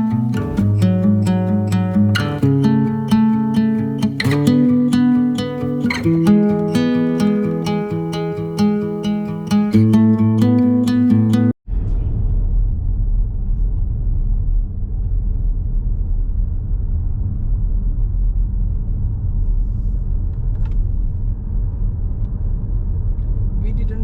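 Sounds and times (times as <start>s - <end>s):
acoustic guitar music: 0.0s - 11.6s.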